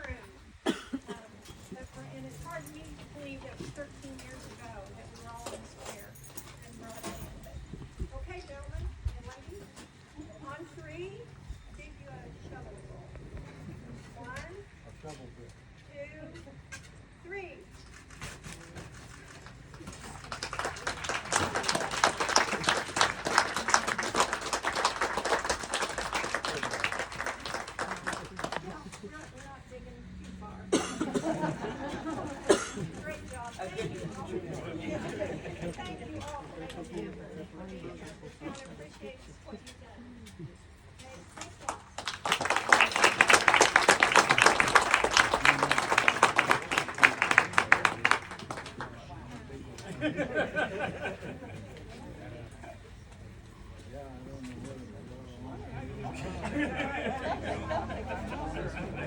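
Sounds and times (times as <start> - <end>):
crowd applauding: 19.0 - 29.3, 41.4 - 50.8.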